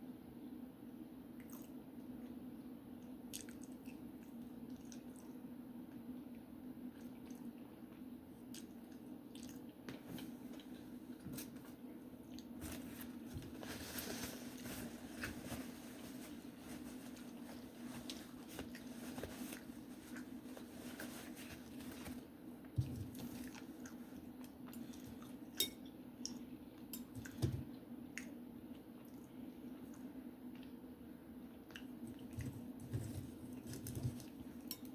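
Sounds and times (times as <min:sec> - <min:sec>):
person chewing food: 0:03.3 - 0:05.4, 0:06.9 - 0:11.0, 0:17.2 - 0:20.7, 0:22.9 - 0:27.4, 0:31.6 - 0:34.9.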